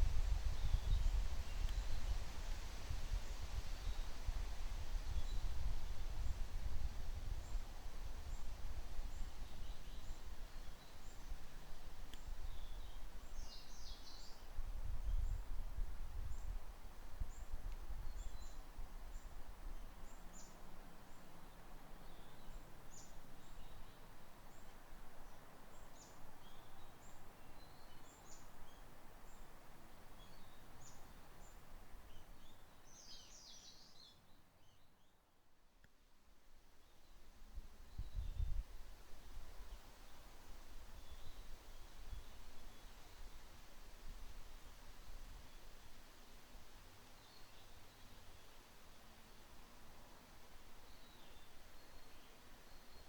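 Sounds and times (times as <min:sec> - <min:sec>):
low wind rumble: 0:00.0 - 0:10.4.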